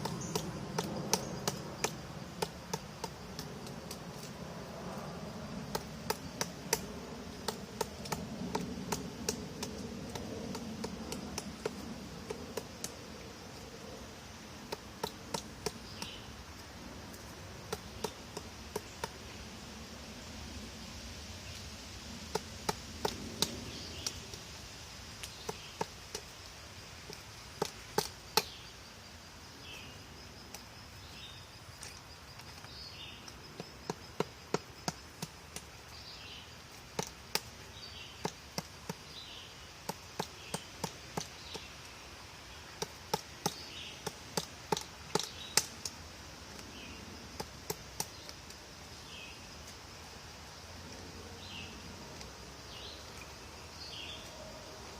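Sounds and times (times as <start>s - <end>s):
woodpecker pecking at wood: 0.0s - 4.3s, 5.6s - 13.7s, 14.6s - 16.3s, 17.6s - 19.2s, 22.3s - 24.4s, 25.2s - 26.4s, 27.0s - 28.6s, 32.5s - 35.7s, 36.8s - 37.6s, 38.2s - 41.8s, 42.7s - 46.7s, 47.4s - 48.6s.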